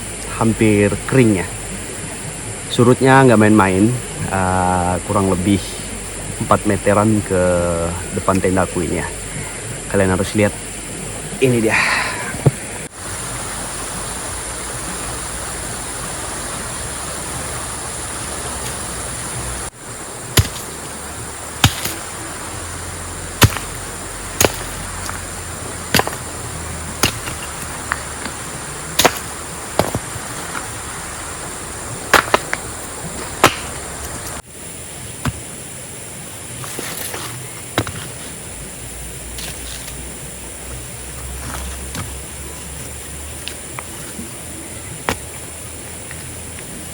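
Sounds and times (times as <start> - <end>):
steady rushing noise: 0.0 - 46.9
sharp knocks: 20.4 - 20.7, 23.4 - 23.8, 25.9 - 26.3, 27.0 - 28.0, 29.0 - 30.1, 33.4 - 33.8.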